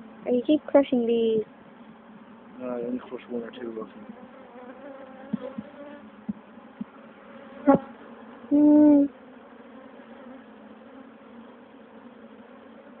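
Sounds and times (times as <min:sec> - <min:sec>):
bees buzzing: 0:01.4 - 0:13.0.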